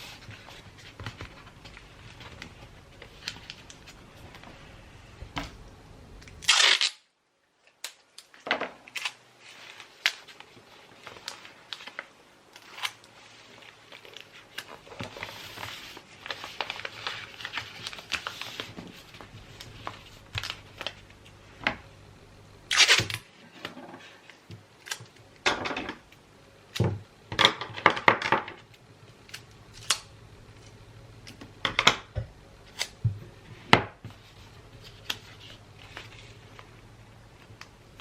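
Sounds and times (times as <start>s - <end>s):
wrapping paper rustling: 0.0s - 4.8s, 7.7s - 21.6s, 34.1s - 38.0s.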